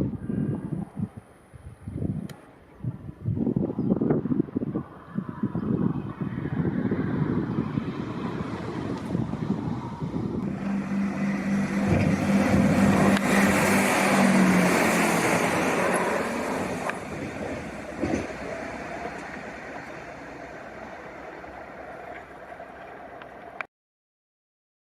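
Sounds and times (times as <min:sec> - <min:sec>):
train passing: 0:06.2 - 0:23.6
steady low hum: 0:09.2 - 0:23.6.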